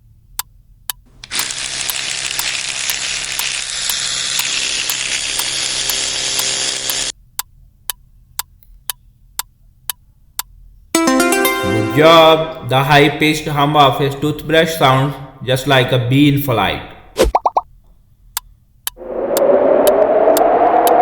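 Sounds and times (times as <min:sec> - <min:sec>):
electric toothbrush buzzing: 0:01.2 - 0:07.1.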